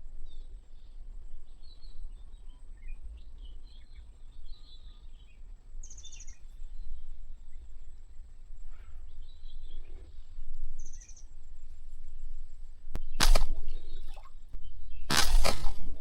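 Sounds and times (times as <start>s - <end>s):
faint bird chirps: 0.0s - 15.1s
low outdoor rumble: 0.0s - 16.0s
loud rushing bursts: 13.2s - 14.2s.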